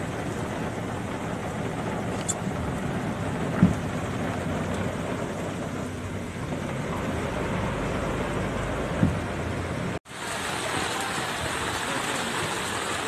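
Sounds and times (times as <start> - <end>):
heavy rain pouring: 0.0 - 13.0
sharp low thump: 3.4 - 4.1, 8.8 - 9.4.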